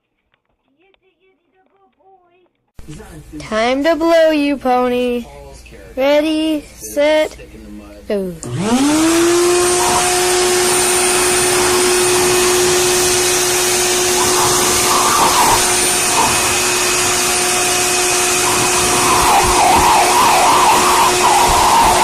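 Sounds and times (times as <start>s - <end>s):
blow dryer motor whine: 8.4s - 22.0s
air blowing: 8.5s - 22.0s.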